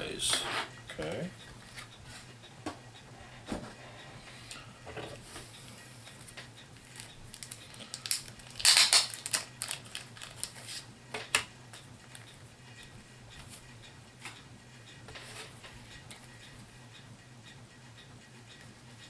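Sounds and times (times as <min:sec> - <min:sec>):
plastic pieces clicking and rattling: 0:07.0 - 0:10.6.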